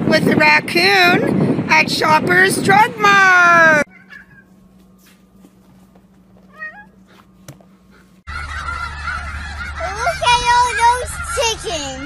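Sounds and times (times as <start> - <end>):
cat meowing: 3.9 - 4.5, 6.5 - 7.0
geese honking: 7.8 - 12.0.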